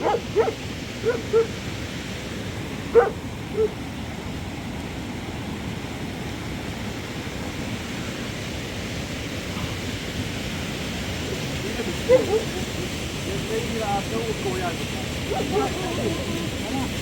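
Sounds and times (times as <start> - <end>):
dog yip: 0.0 - 1.6, 3.0 - 3.8, 12.1 - 12.6, 15.3 - 16.1.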